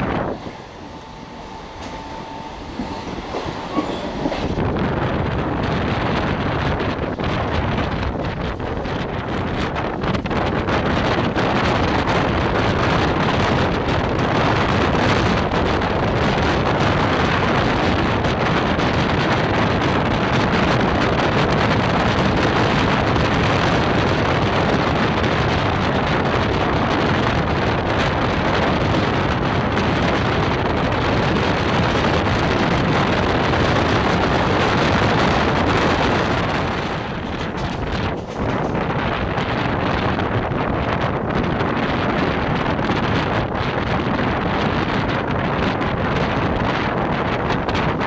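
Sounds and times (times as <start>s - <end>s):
rushing wind: 0.0s - 48.0s
train running noise: 0.0s - 48.0s
wind buffeting microphone: 0.0s - 48.0s.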